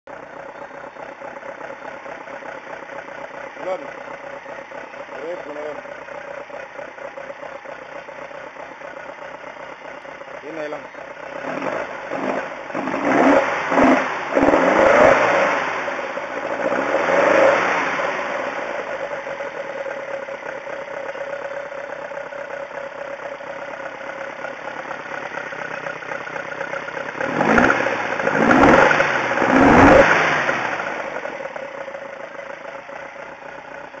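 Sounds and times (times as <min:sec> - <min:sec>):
car engine revving and idling: 0:00.1 - 0:34.0
engine throttle blips: 0:00.4 - 0:34.0.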